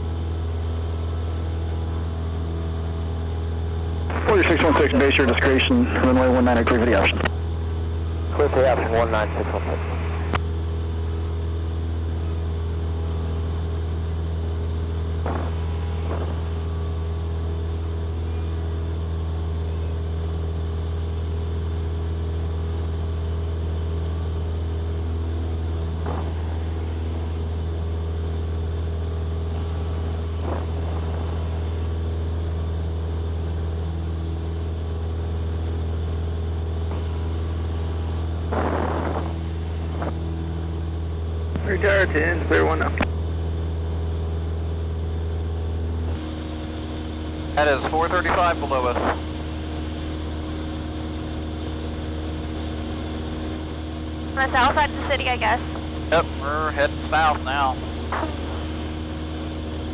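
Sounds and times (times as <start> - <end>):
aircraft engine drone in cabin: 0.0 - 59.9.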